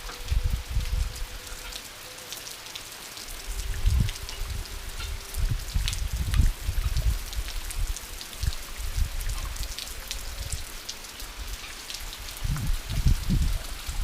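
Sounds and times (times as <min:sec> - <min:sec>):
light rain falling: 0:00.0 - 0:14.0.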